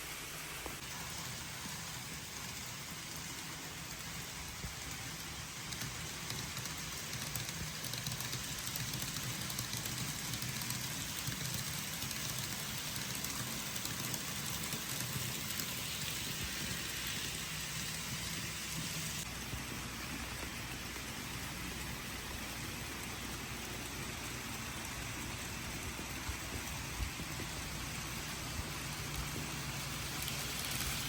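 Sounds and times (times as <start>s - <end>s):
rain hissing: 26.2s - 31.0s.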